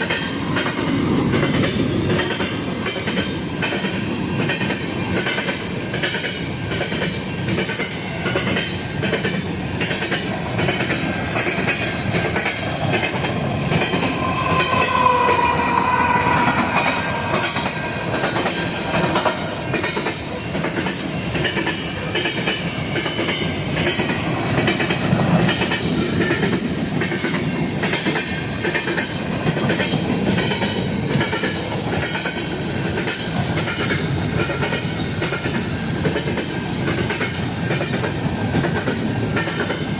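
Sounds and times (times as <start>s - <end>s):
high wheel squeal: 13.7s - 19.5s.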